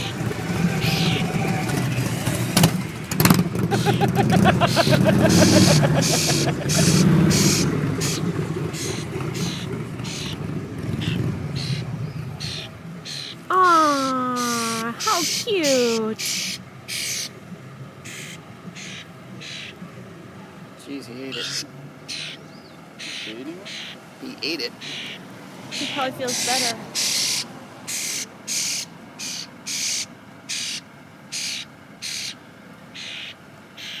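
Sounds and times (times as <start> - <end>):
bird harsh hissing calls: 0.0 - 2.2, 3.7 - 10.4, 11.0 - 17.4, 18.0 - 19.8, 21.3 - 32.4, 33.0 - 34.0
vehicle engine running: 0.0 - 33.8.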